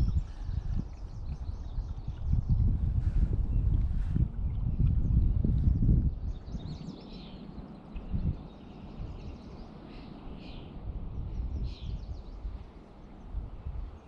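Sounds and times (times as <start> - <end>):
birds chirping: 0.0 - 14.0
steady low rumble: 0.0 - 14.0.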